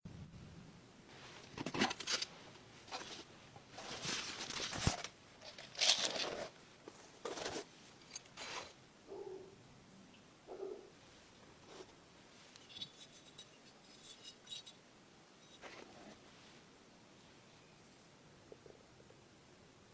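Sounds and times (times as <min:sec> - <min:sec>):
rustling and scraping of packaging: 0:01.1 - 0:08.8.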